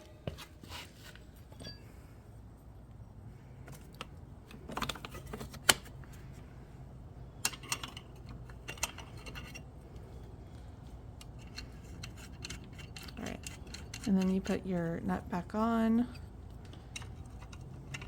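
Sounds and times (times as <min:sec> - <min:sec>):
small metal clicks and taps: 0:16.1 - 0:18.0.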